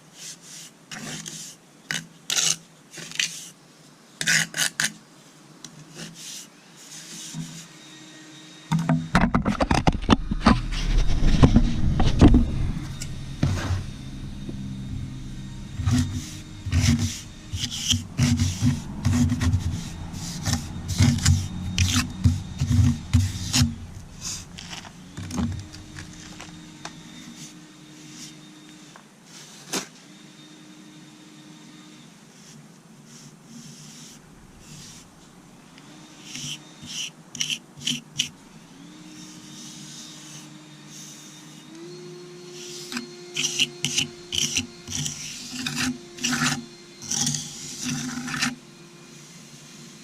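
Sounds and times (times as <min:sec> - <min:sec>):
low pulsing rumble: 0:09.6 - 0:27.2, 0:34.2 - 0:35.7
trowel scraping and tapping mortar: 0:42.9 - 0:48.5.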